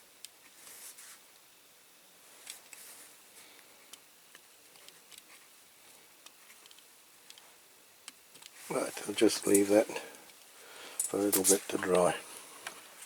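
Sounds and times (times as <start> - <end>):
small parts clicking and tapping: 6.2 - 8.6, 9.4 - 12.0.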